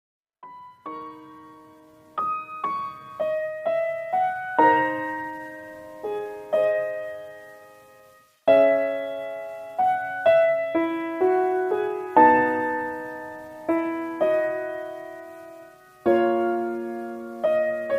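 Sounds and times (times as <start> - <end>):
slow solo piano: 0.4 - 17.9.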